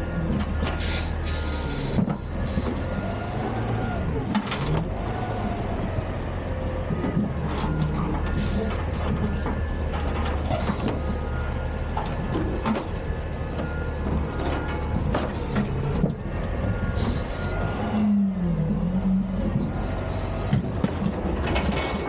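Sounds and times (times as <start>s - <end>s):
garbage truck engine running: 0.0s - 22.0s
metallic knocks and clanks: 20.4s - 22.0s.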